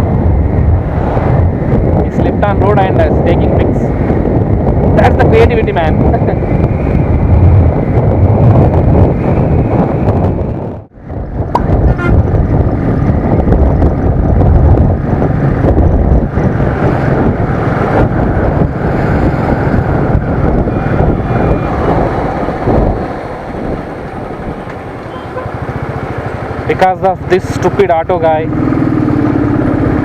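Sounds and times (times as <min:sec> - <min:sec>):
wind rushing over microphone: 0:00.0 - 0:30.0
motorcycle engine: 0:06.0 - 0:30.0.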